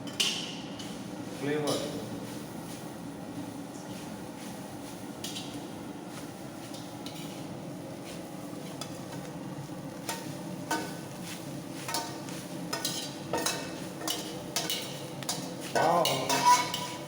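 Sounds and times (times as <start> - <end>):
low sizzle: 0.0 - 17.0
ladle scraping a pan: 11.8 - 17.0.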